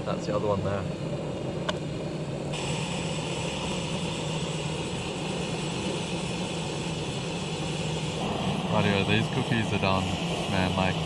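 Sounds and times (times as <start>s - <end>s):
gas stove hissing: 0.0s - 11.0s
higher hiss: 2.2s - 11.0s.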